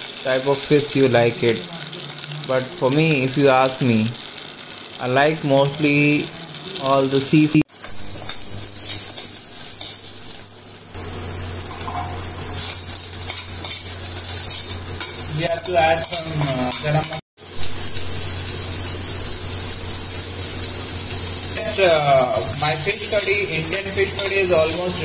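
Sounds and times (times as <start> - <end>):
vegetables sizzling in hot oil: 0.0 - 25.0
spoon scraping a pot: 7.8 - 10.3, 11.7 - 17.2.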